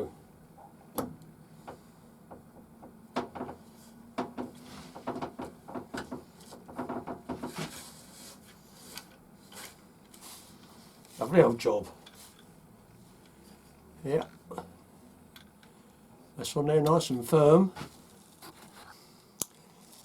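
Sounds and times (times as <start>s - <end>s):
metal and wood scraping: 3.5s - 10.6s.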